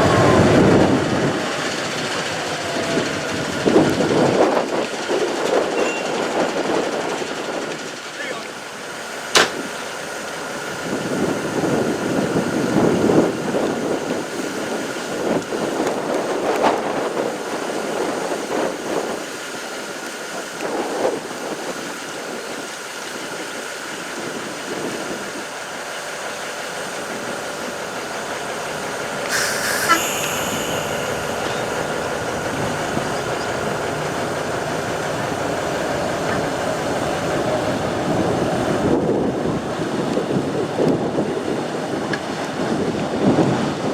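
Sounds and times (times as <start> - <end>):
diesel locomotive running: 25.3 - 40.5
constant tone: 29.2 - 35.2
sharp high-pitched sound: 29.3 - 33.5.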